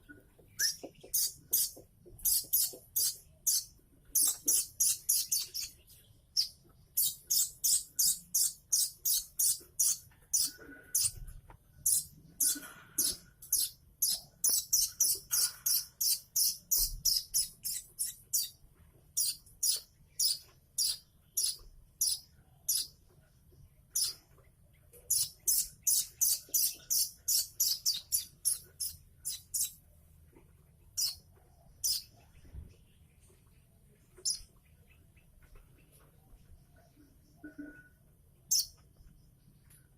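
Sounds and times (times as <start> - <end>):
bird chicks begging chirps: 0.6 - 18.6.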